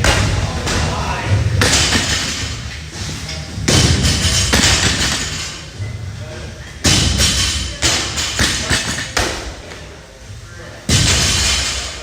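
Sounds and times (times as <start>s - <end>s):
heavy thuds: 0.0s - 6.0s.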